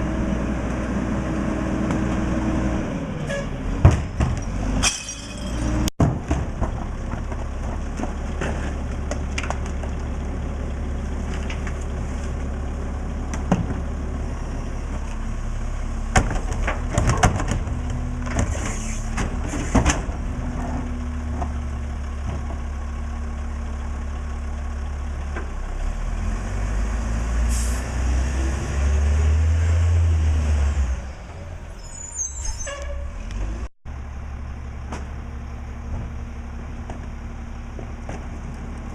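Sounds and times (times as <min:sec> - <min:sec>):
garbage truck diesel engine: 0:00.0 - 0:38.9
air brake hisses: 0:27.5 - 0:27.9.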